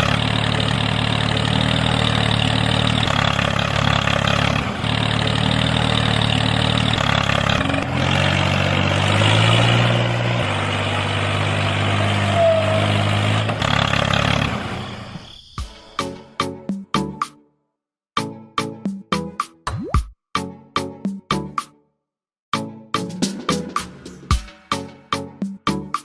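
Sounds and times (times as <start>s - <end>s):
small engine running: 0.0s - 15.2s.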